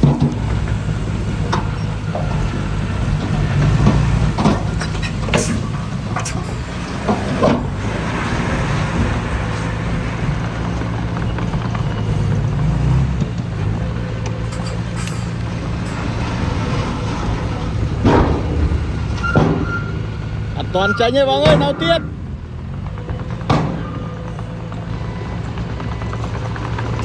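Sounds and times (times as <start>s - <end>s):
sharp metallic clanks: 0.0s - 7.8s, 14.2s - 16.2s, 17.5s - 22.3s
heavy machine diesel engine running: 0.0s - 27.0s.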